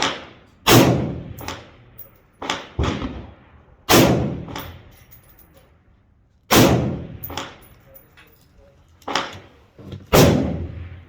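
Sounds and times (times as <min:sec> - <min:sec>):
rifle shots echoing: 0:00.0 - 0:04.9, 0:06.5 - 0:07.7, 0:09.1 - 0:11.0.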